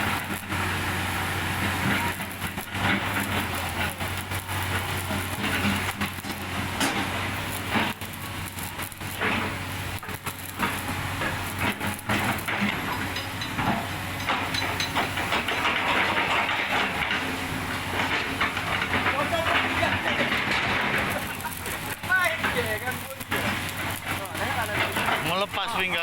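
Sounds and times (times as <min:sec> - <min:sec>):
steady hissing: 0:20.8 - 0:26.0.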